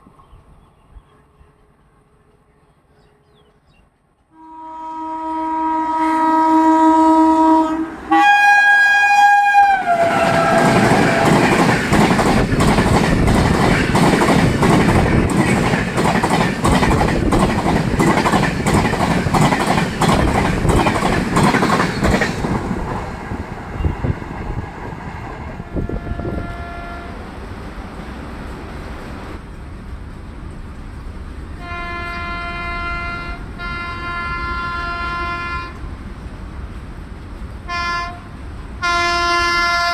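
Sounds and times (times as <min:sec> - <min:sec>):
train rushing past: 0:04.2 - 0:39.9
train horn: 0:04.3 - 0:11.8, 0:25.5 - 0:27.2, 0:31.6 - 0:35.9, 0:37.6 - 0:39.9
wheels clacking over rail joints: 0:09.9 - 0:25.7.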